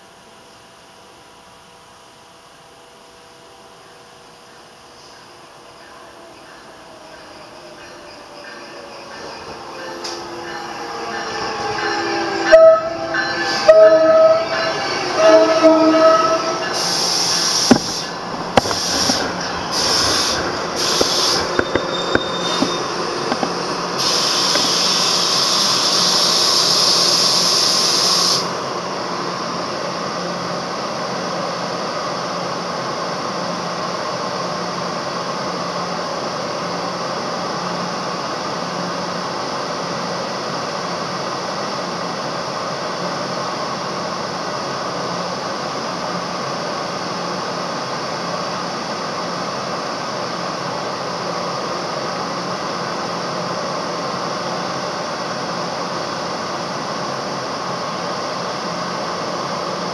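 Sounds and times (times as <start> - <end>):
standing train hum: 0.0 - 59.9
passing train rumble: 4.0 - 59.9
train horn: 11.8 - 18.0
loud steady hiss: 16.6 - 59.9.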